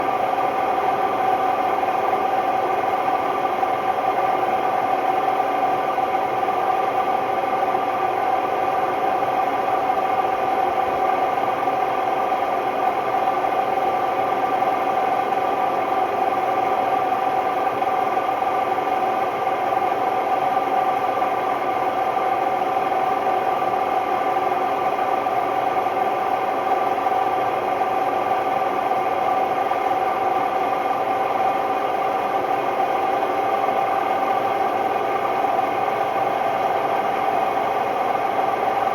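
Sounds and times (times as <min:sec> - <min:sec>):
washing machine spinning whine: 0:00.0 - 0:38.9.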